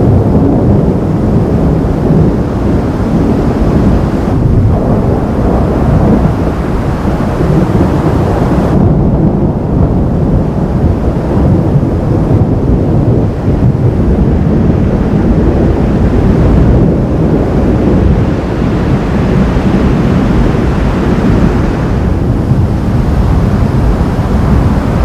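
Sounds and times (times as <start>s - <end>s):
storm wind buffeting microphone: 0.0s - 25.0s.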